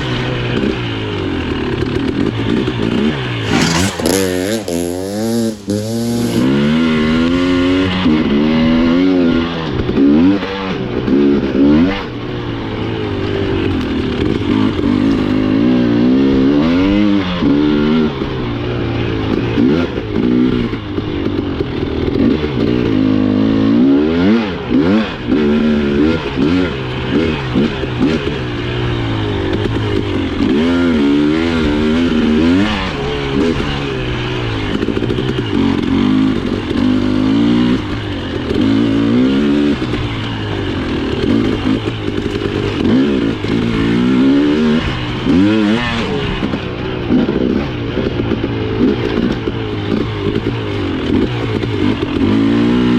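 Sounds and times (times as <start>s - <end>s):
two-stroke motorbike engine revving: 0.0s - 52.9s.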